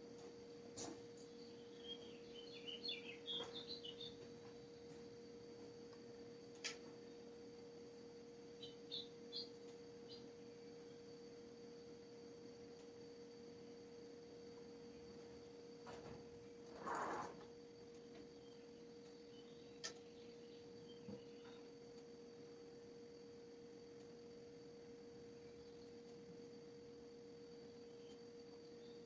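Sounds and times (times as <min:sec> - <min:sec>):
faint hum: 0:00.0 - 0:29.0
small bird chirping: 0:01.2 - 0:05.0, 0:08.4 - 0:11.0, 0:18.4 - 0:21.8, 0:27.7 - 0:29.0.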